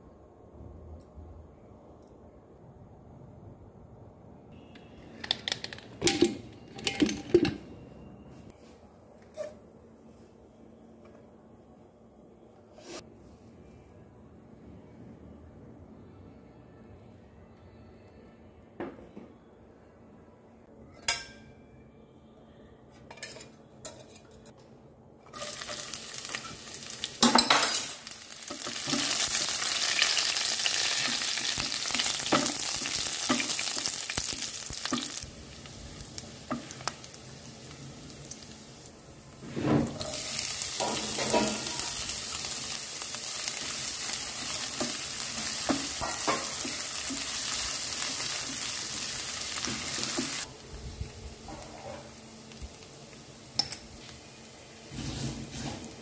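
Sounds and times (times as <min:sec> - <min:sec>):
garlic frying in hot oil: 0:25.3 - 0:39.2, 0:39.8 - 0:50.6
onion sizzling: 0:25.3 - 0:56.0.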